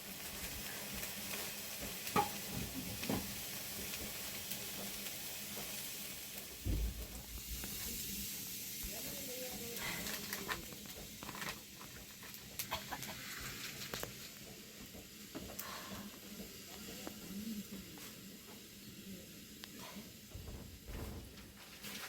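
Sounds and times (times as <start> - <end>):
chickens clucking: 12.4 - 13.6.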